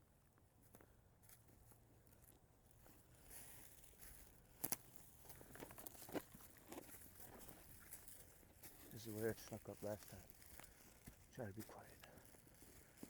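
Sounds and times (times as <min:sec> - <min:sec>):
faint footsteps in undergrowth: 0:00.2 - 0:13.0
rustling in undergrowth: 0:02.9 - 0:13.0.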